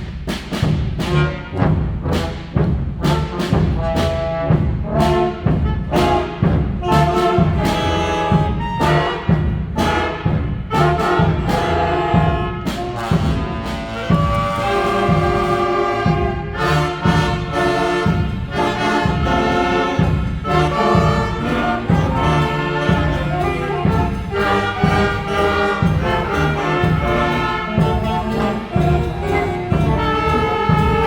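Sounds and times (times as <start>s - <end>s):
brass melody: 0.0s - 31.0s
concert band playing: 0.0s - 31.0s.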